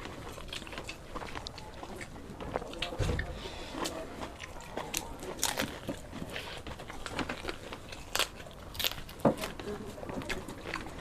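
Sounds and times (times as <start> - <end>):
chewing with wet smacks: 0.0 - 11.0
crisp crunches: 0.0 - 11.0.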